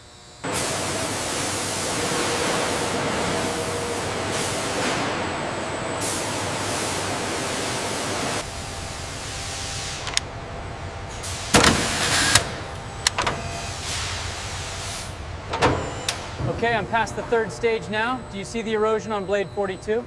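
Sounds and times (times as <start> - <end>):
industrial machinery hiss: 0.4 - 19.7
mechanical clanks and knocks: 11.1 - 17.2.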